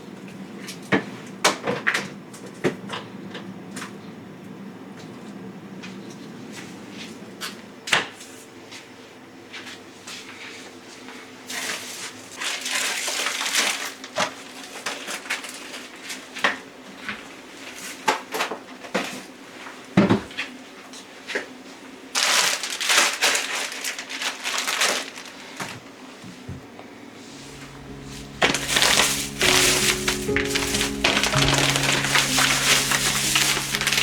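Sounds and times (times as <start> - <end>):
rustling or scraping: 27.2 - 34.0.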